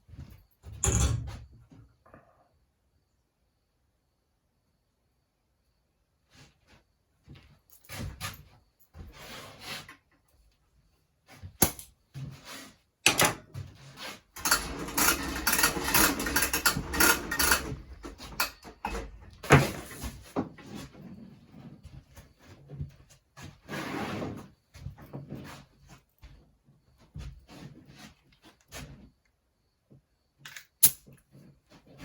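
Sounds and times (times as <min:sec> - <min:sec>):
objects clattering on a work surface: 0:13.0 - 0:20.9.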